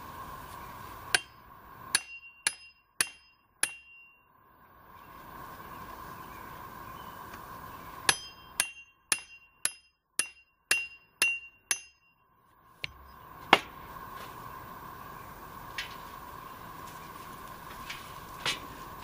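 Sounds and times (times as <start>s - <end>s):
hammer striking metal: 1.1s - 4.3s, 8.1s - 12.2s.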